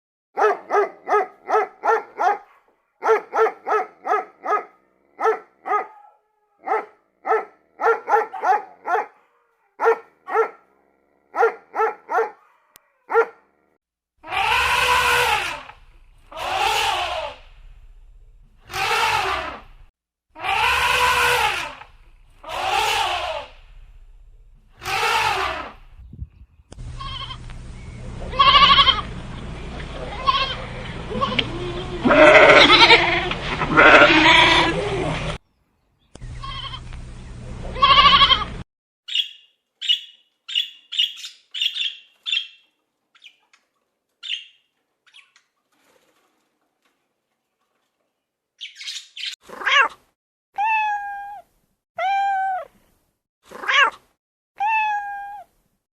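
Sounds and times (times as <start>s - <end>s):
dog barking: 0.4s - 10.7s, 11.3s - 13.5s
baby elephant trumpeting: 14.2s - 17.5s, 18.7s - 19.7s, 20.4s - 23.6s, 24.8s - 25.9s, 28.3s - 29.0s, 30.1s - 35.3s, 37.8s - 38.6s
lambs bleating: 14.2s - 17.5s, 18.7s - 19.7s, 20.4s - 23.6s, 24.8s - 25.8s, 26.9s - 27.5s, 28.3s - 29.1s, 30.1s - 35.2s, 36.3s - 36.9s, 37.7s - 38.6s
steady low hum: 17.3s - 18.7s, 23.5s - 24.8s, 25.7s - 32.2s, 36.2s - 38.6s.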